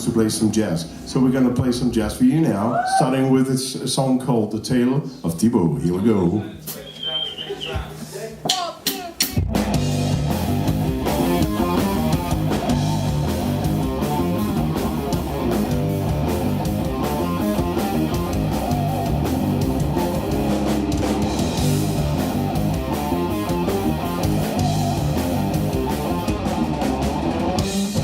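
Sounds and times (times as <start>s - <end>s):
jazz-rock band playing: 9.3s - 28.0s.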